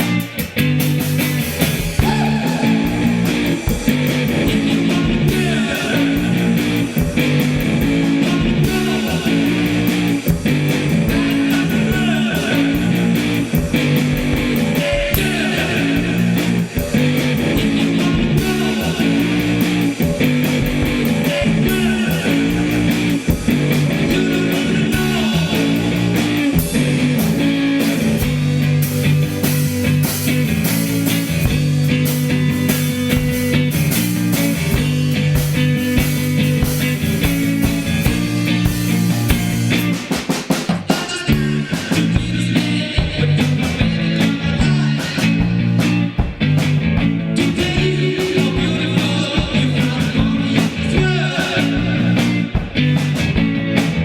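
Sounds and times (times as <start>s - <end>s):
psychedelic rock instrumental: 0.0s - 54.0s.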